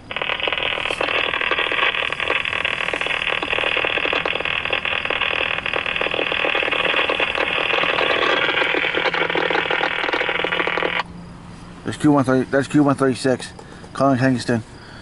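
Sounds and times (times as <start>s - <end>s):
radio scanner static hiss: 0.0s - 11.1s.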